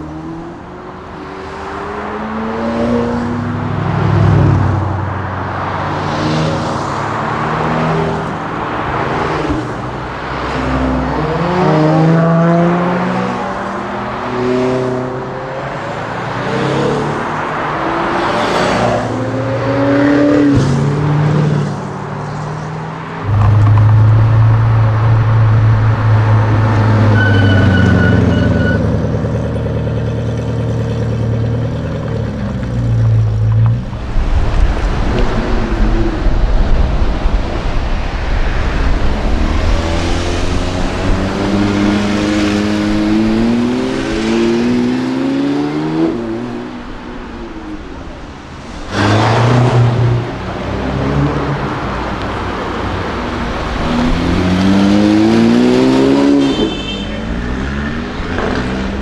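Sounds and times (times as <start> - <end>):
loud low drone: 23.2 - 28.4.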